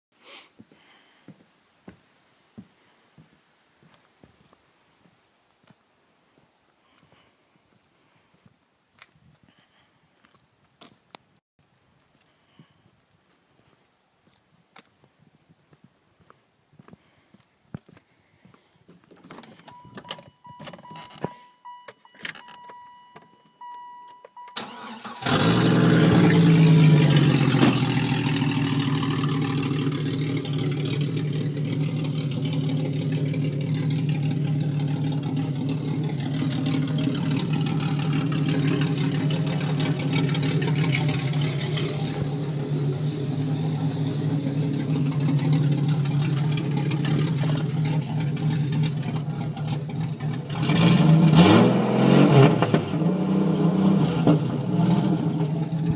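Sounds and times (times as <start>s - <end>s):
car engine cranking and idling: 19.0s - 55.9s
dashboard warning chime: 19.6s - 24.7s.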